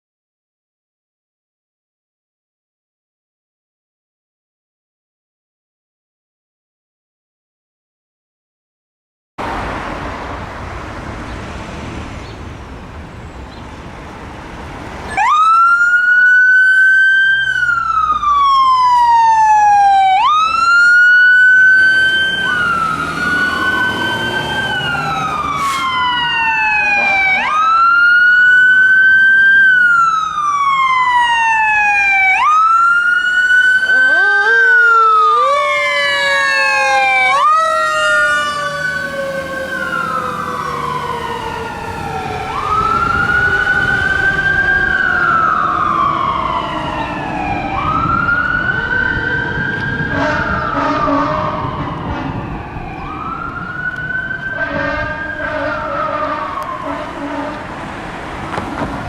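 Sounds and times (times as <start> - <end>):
street and engine noise: 9.4 - 59.0
fire truck sirens wailing: 14.8 - 59.0.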